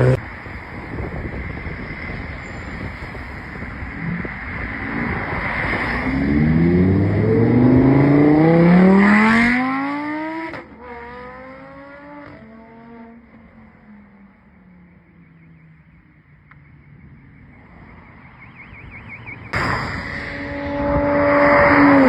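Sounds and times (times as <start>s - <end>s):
sports car engine accelerating: 0.0s - 0.2s, 4.1s - 13.8s, 20.3s - 22.0s.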